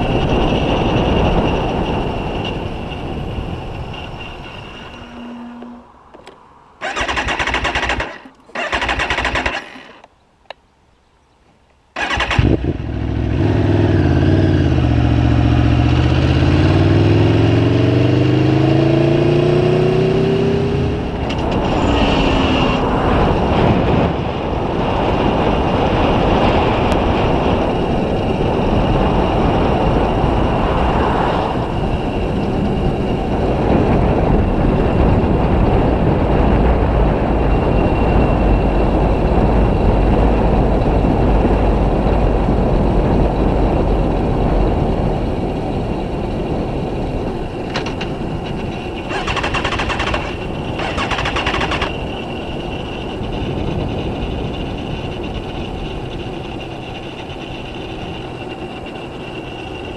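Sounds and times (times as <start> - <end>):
wind rushing: 12.0 - 57.2
motorcycle engine accelerating: 12.0 - 59.9.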